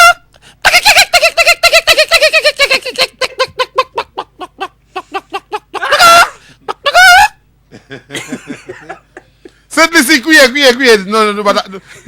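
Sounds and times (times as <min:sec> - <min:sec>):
man imitating chicken clucks: 0:05.8 - 0:07.3.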